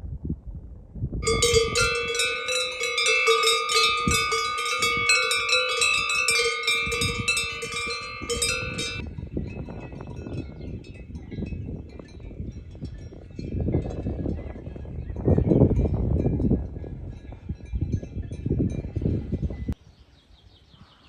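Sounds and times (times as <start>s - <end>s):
metal cowbells clanging: 1.2s - 14.3s.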